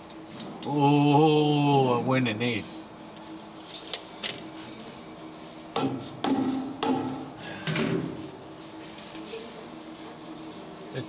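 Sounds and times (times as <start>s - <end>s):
hammer striking metal axle: 5.8s - 7.9s.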